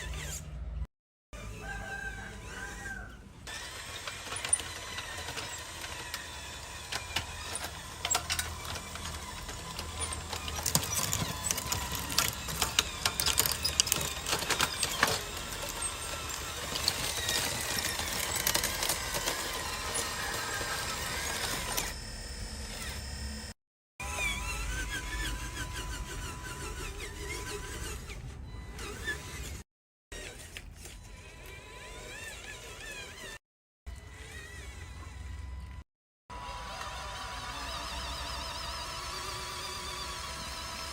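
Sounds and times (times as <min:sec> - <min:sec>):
small electric motors whining: 0:00.0 - 0:00.8, 0:01.4 - 0:40.9
clicks and scrapes: 0:03.5 - 0:22.0.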